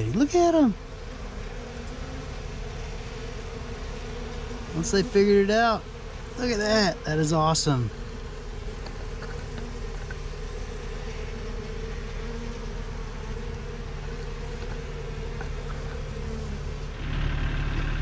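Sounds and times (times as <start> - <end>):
honey bees buzzing: 0.0 - 17.7
low engine rumble: 14.9 - 18.0.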